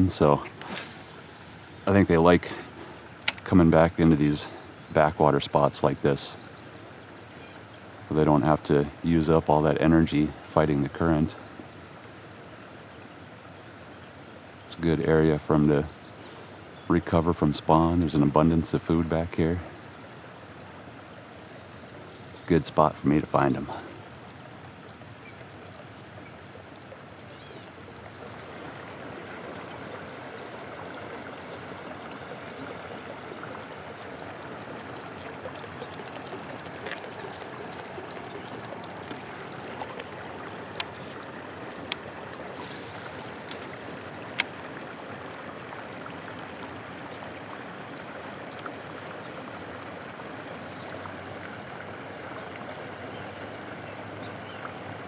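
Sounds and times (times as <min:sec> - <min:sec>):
water gurgling: 0:00.0 - 0:55.0
sharp clicks: 0:03.2 - 0:03.5.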